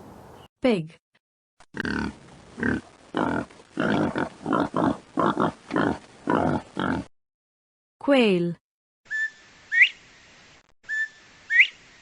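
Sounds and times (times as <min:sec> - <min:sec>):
pig grunting: 0:01.8 - 0:07.1.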